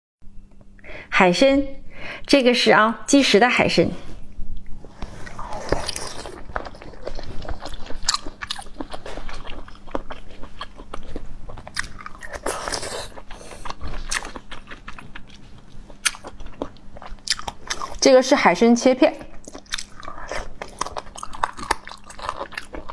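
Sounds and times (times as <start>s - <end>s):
crunchy chewing and biting: 5.0s - 18.0s, 19.3s - 22.9s.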